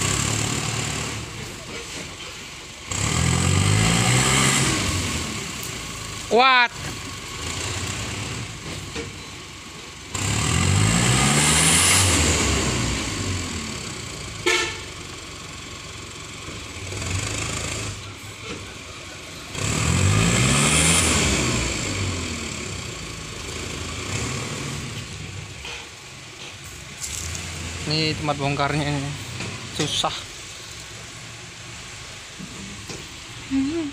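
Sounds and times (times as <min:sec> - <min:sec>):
diesel truck engine revving: 0:00.0 - 0:33.9.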